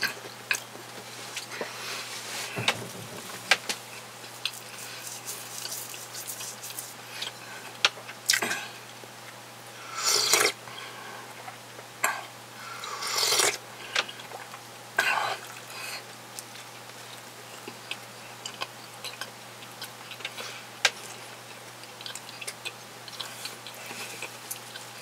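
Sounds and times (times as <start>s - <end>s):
faint steady hum: 0.0s - 25.0s
person chewing sandwich: 3.8s - 8.7s, 12.8s - 25.0s.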